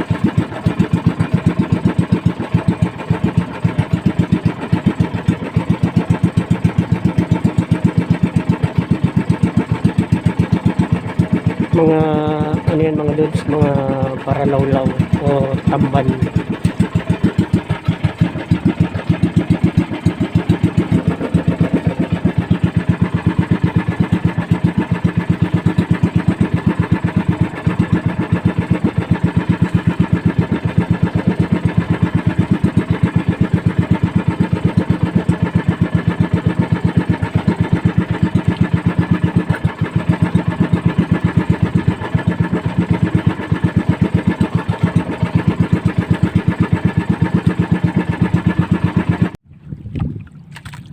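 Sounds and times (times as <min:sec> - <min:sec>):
boat engine running: 0:00.0 - 0:50.9.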